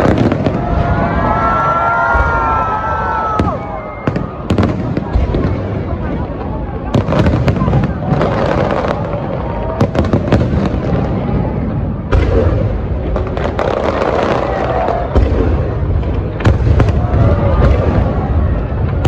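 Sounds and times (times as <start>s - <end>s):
low rumble of firework bursts: 0.0s - 19.0s
sharp firework bangs: 6.9s - 19.0s.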